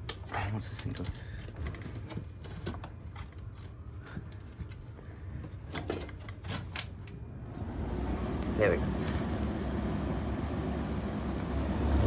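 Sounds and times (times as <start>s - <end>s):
exhaust fan humming: 7.4s - 12.0s.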